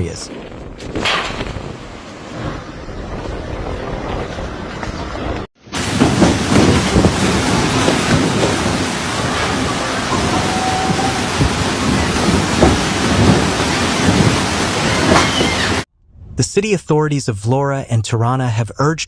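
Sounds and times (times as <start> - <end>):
strong wind gusts: 0.0 - 16.4
heavy rain pouring: 1.7 - 15.9.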